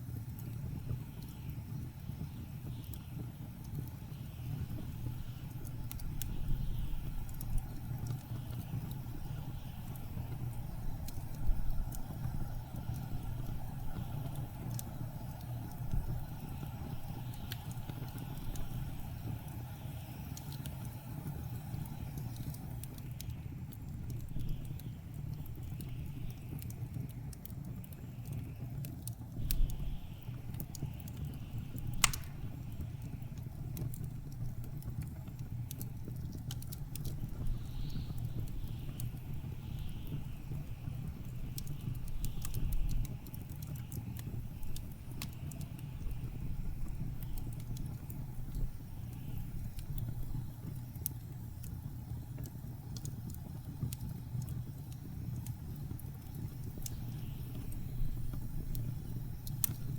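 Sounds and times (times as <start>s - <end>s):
wood fire crackling: 0.0s - 59.9s
sharp fire pops: 29.4s - 51.2s.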